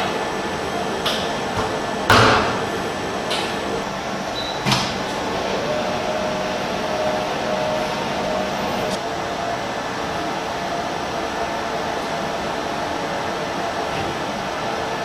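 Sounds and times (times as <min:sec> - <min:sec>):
industrial washer humming: 0:00.0 - 0:15.0
loud clunk: 0:01.1 - 0:03.6.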